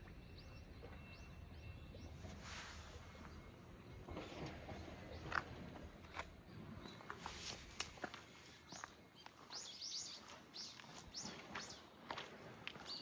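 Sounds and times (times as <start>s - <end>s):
small birds chirping: 6.8s - 13.0s.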